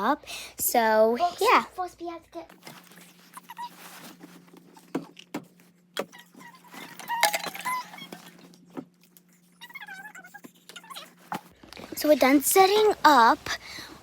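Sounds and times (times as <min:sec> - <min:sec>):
squeaky pitched-up voices: 0:09.5 - 0:11.4.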